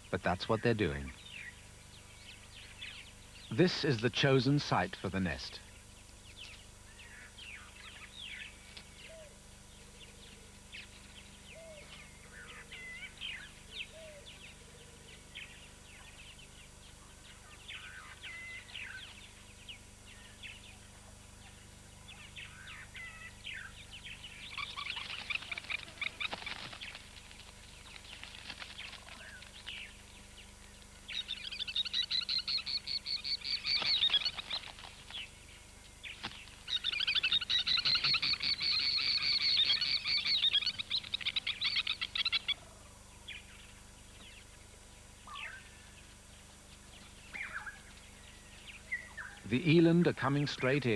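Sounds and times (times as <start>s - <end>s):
plover calling: 21.4s - 27.2s, 31.1s - 35.3s, 36.6s - 43.0s.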